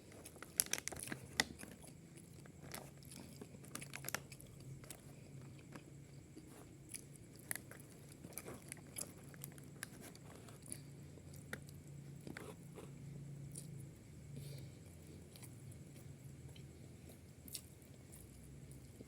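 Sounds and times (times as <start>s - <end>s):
low steady hum: 0.0s - 19.0s
food crunching: 0.1s - 12.6s, 15.2s - 19.0s
person chewing food: 0.1s - 19.0s.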